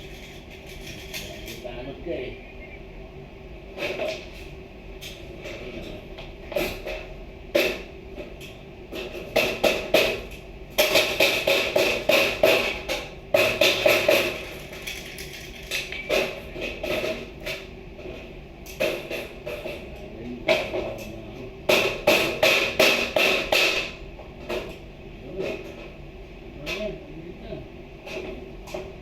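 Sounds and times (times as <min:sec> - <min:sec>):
hard objects knocking and clattering: 0:00.0 - 0:01.6, 0:09.0 - 0:18.2.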